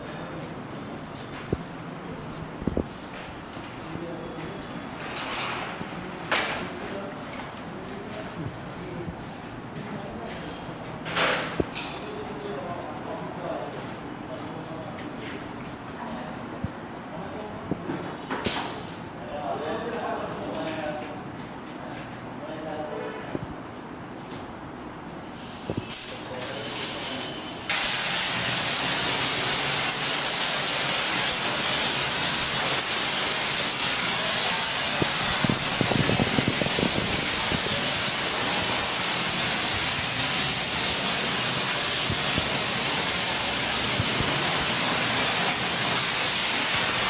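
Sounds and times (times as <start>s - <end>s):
water spray hissing: 25.3s - 47.0s.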